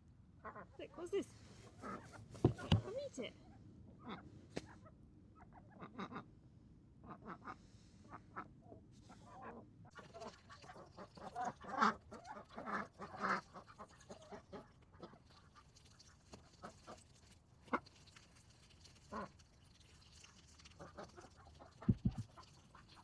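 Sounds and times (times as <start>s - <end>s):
ducks quacking: 0.4s - 3.2s, 4.0s - 6.3s, 7.0s - 15.6s, 20.8s - 23.0s.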